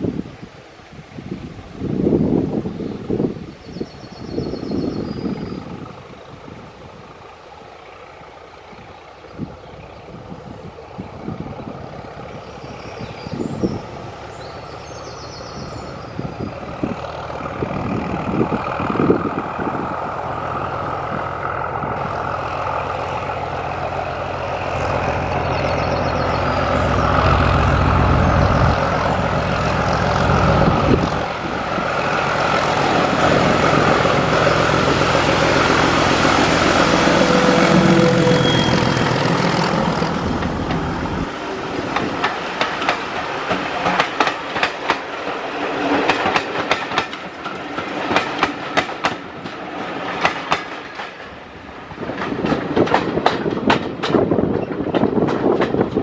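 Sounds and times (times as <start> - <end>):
diesel train engine: 1.4 - 56.0
train wheels on rails: 4.6 - 56.0
heavy low rumble: 16.5 - 44.0.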